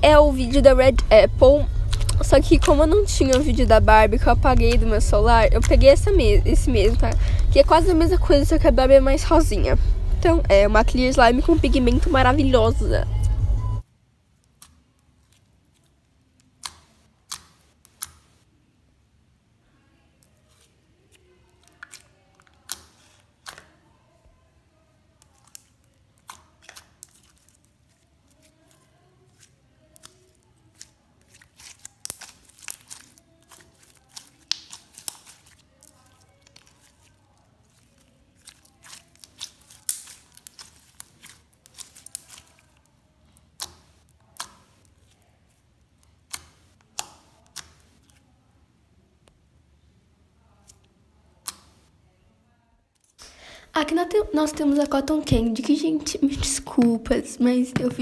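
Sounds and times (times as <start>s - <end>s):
slime clicking and popping: 1.0s - 3.8s, 16.5s - 18.2s, 21.6s - 23.7s, 25.2s - 27.4s, 29.9s - 37.0s, 38.4s - 42.6s, 43.5s - 44.9s, 46.2s - 47.9s.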